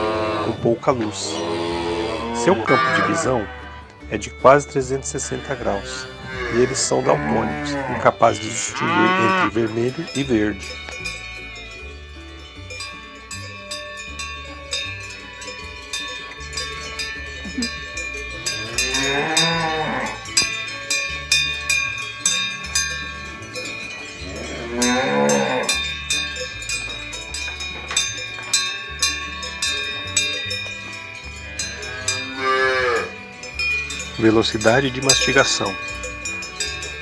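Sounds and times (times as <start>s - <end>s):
cows mooing: 0.0s - 3.9s, 5.2s - 10.0s, 16.4s - 27.0s, 31.4s - 36.0s
bells clinking and ringing: 0.6s - 37.0s.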